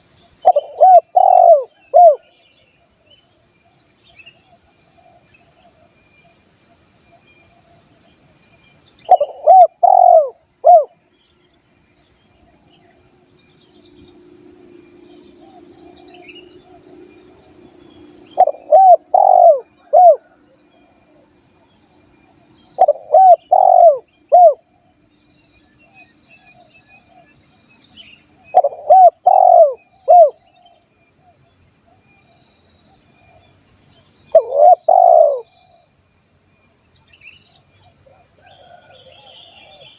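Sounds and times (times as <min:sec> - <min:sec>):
dove cooing: 0:00.4 - 0:02.3, 0:09.1 - 0:11.0, 0:18.2 - 0:20.5, 0:22.7 - 0:24.7, 0:28.5 - 0:30.7, 0:34.3 - 0:35.8.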